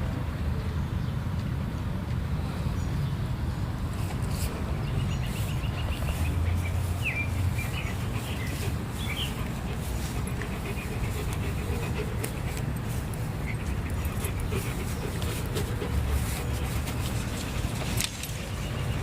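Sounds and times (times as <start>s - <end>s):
small birds chirping: 4.0s - 19.0s.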